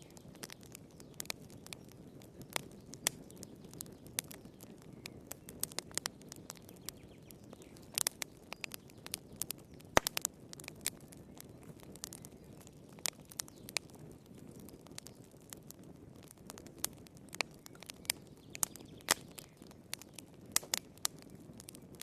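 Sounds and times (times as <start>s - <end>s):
low rumble of burning: 0.0s - 22.0s
wood fire pops and snaps: 0.0s - 22.0s.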